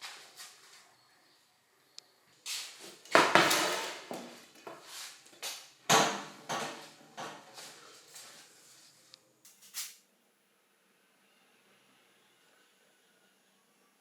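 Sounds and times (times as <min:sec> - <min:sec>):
metal bicycle parts clanking: 0:09.5 - 0:10.0.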